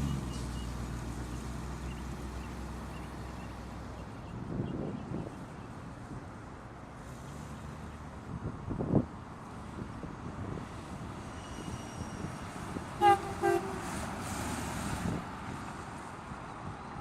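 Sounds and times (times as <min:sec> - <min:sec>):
car driving away: 0:00.0 - 0:03.8
car horn beeps: 0:13.0 - 0:13.9.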